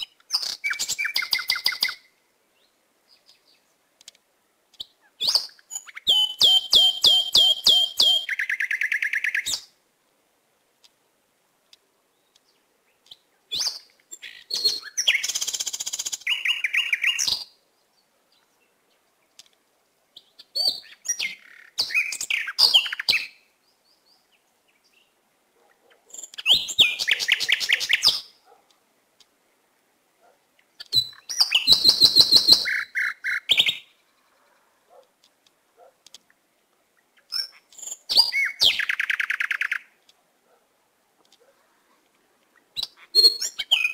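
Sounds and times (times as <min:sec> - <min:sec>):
bird chirping and trilling: 0:00.0 - 0:02.1, 0:04.8 - 0:09.7, 0:13.1 - 0:17.6, 0:20.2 - 0:25.1, 0:26.1 - 0:28.4, 0:30.8 - 0:34.5, 0:37.0 - 0:39.9, 0:42.8 - 0:43.9.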